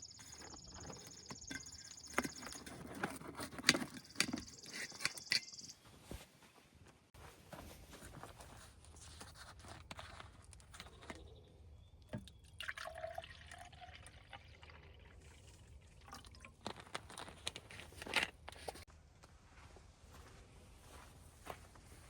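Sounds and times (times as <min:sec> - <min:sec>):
small clicks and handling noises: 0:00.2 - 0:05.7, 0:16.6 - 0:18.9
liquid dripping and pouring: 0:12.2 - 0:16.8.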